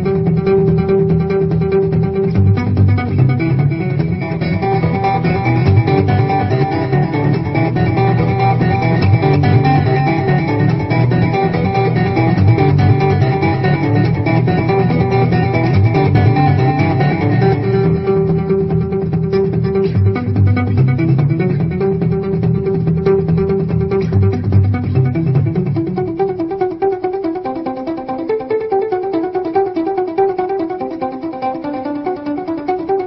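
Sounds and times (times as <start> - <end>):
bass line: 0.0 - 26.4
plucked guitar: 0.0 - 33.0.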